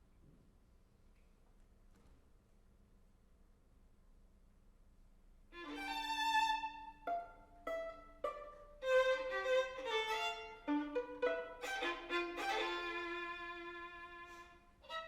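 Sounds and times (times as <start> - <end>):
string quartet playing: 5.6 - 15.0.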